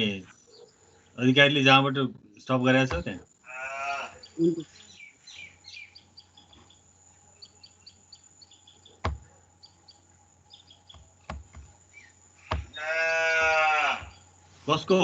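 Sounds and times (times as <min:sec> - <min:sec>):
birds chirping faintly: 0:00.0 - 0:15.0
farm animal calling: 0:02.3 - 0:11.2, 0:11.8 - 0:14.4.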